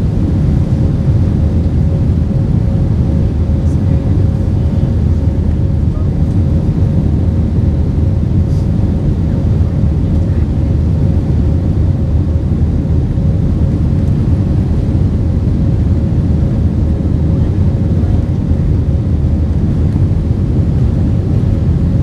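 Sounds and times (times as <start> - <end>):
faint constant hum tone: 0.0 - 22.0
jet engine rumble in cabin: 0.0 - 22.0.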